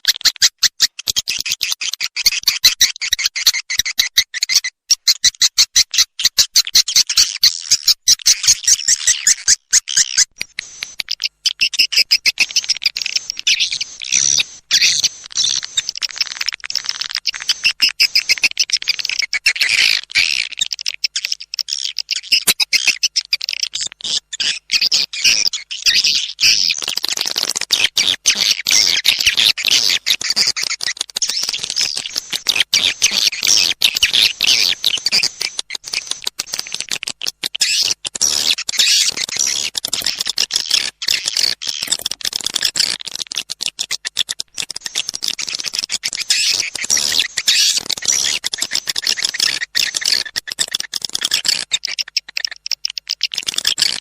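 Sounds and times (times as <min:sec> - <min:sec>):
swiftlets twittering and chirping: 0:00.0 - 0:54.0
rapid clicks: 0:29.0 - 0:54.0.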